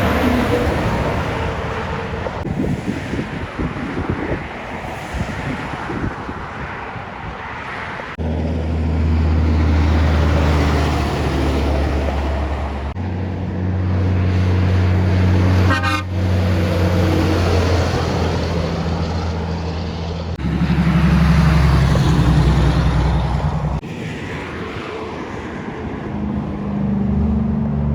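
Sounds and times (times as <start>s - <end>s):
trucks passing: 0.0s - 27.9s
air horn blasts: 15.4s - 16.5s.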